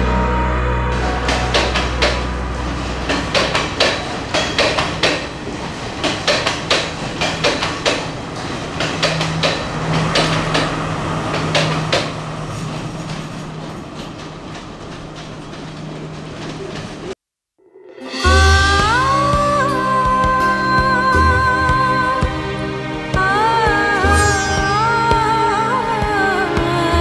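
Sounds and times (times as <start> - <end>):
train wheels clattering: 1.0 - 17.1.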